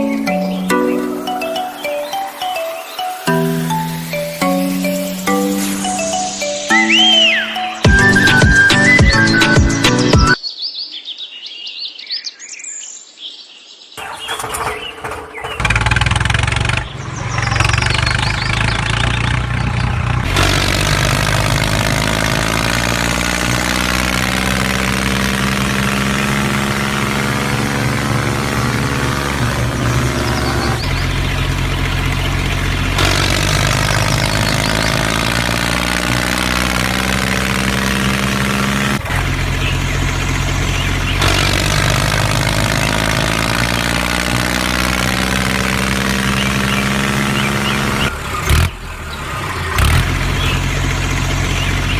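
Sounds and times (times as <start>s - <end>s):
small engine running: 14.0s - 51.9s.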